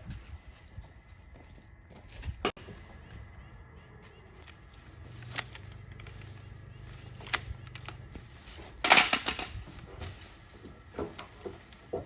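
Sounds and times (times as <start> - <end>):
rustling crash of brush: 5.0 - 12.0.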